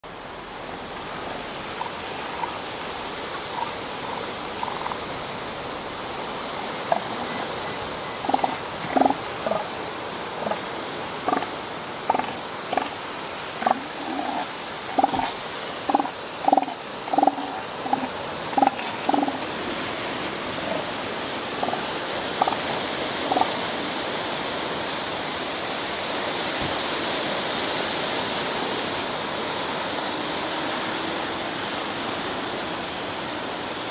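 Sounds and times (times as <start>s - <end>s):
steady surf: 0.0s - 33.9s
elephant seal pulsed calls: 1.6s - 5.2s, 6.7s - 9.8s, 10.4s - 13.0s, 13.6s - 19.6s, 20.5s - 23.7s.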